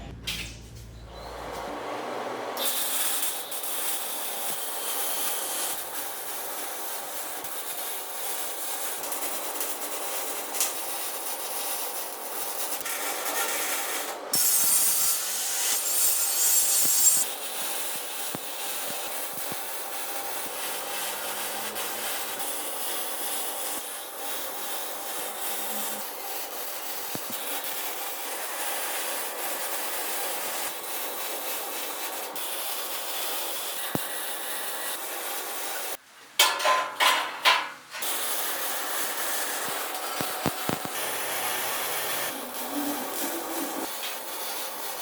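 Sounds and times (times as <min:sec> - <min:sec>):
tool rasping on material: 0:12.8 - 0:27.7, 0:38.0 - 0:45.0.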